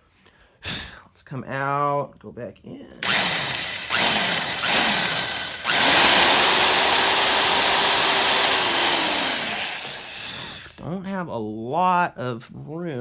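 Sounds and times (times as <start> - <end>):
electric drill boring into wood: 3.0 - 10.8.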